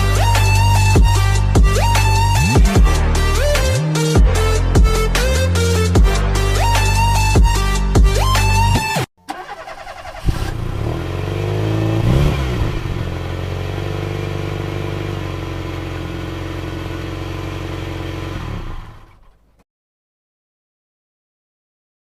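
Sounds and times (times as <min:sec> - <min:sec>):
vehicle engine revving: 0:00.2 - 0:04.4, 0:09.4 - 0:19.5.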